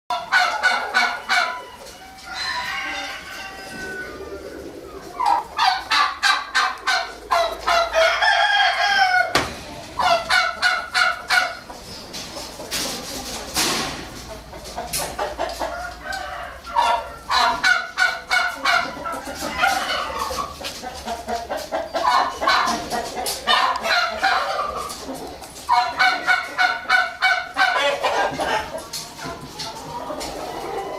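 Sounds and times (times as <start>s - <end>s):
poultry calling: 0.1s - 12.1s.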